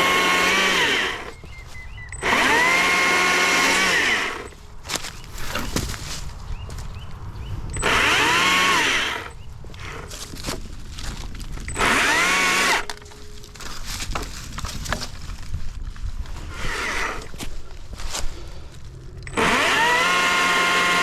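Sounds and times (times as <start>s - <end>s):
chainsaw revving: 0.0s - 1.4s, 2.2s - 4.6s, 7.7s - 10.2s, 11.7s - 13.0s, 16.5s - 17.4s, 19.2s - 21.0s
chainsaw clatter: 0.0s - 6.2s, 7.7s - 15.3s, 16.4s - 18.2s, 19.1s - 21.0s.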